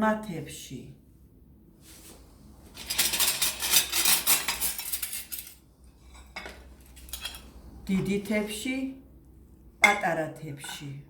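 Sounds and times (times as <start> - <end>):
plates clattering and clinking: 2.8 - 7.5.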